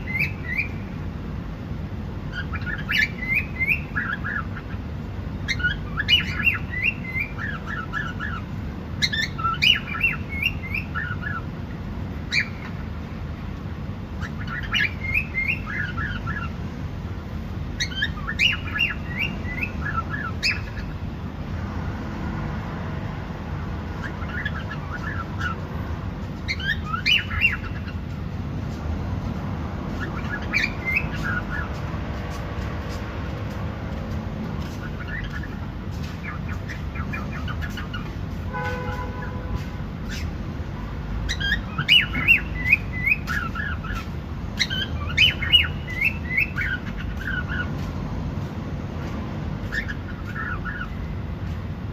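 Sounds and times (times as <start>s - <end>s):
cockatiel chirping and squawking: 0.0s - 0.8s, 2.3s - 4.8s, 5.4s - 11.5s, 12.3s - 12.8s, 14.2s - 16.6s, 17.8s - 21.0s, 24.0s - 25.7s, 26.4s - 28.2s, 29.9s - 31.8s, 34.6s - 38.2s, 39.6s - 40.4s, 41.3s - 47.9s, 49.6s - 51.1s.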